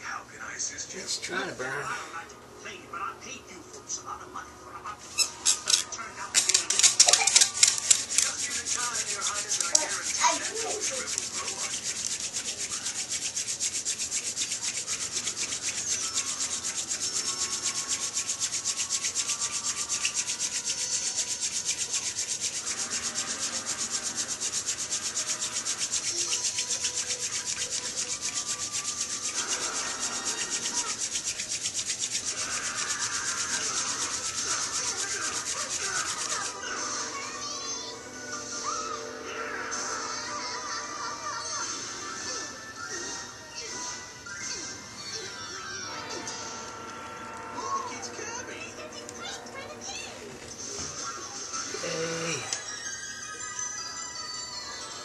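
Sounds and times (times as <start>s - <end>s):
wooden spindle rubbing on hearth: 6.4s - 37.2s.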